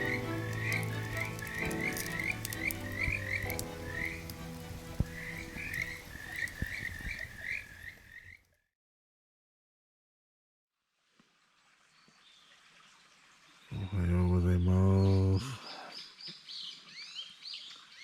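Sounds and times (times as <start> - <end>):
frogs chirping: 0.0 - 8.6.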